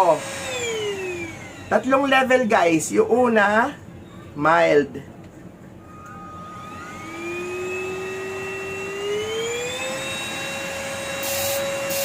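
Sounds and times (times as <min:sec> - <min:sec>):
handheld vacuum cleaner whining: 0:00.0 - 0:02.0, 0:05.9 - 0:12.0.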